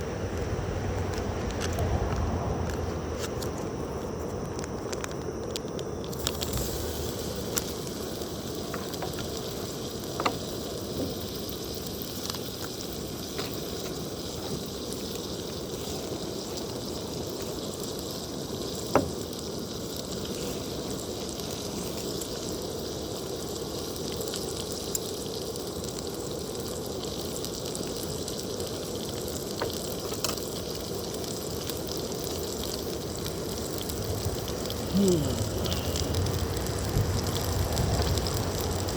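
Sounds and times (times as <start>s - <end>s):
food sizzling in a frying pan: 3.1s - 38.9s
sharp pops of frying: 4.5s - 34.8s.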